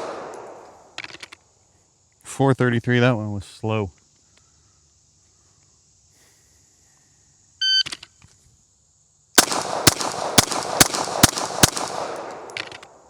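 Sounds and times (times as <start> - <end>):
pistol shots with ringing echo: 0.0 - 0.9, 9.4 - 13.0.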